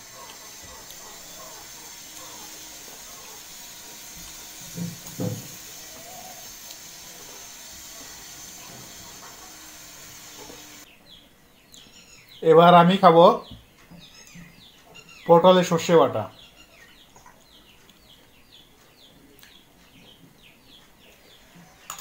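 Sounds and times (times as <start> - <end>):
person chewing food: 0.0 - 7.6
steady hiss: 0.0 - 10.9.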